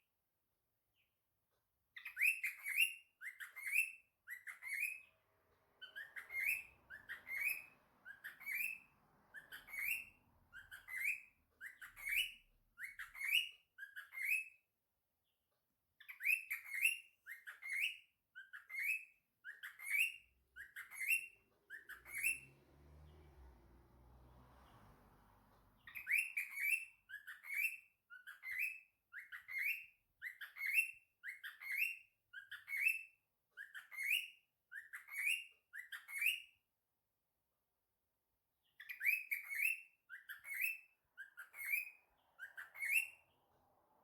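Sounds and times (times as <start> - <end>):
cockatiel chirping: 1.9 - 14.7, 16.0 - 22.6, 25.8 - 36.6, 38.6 - 44.0.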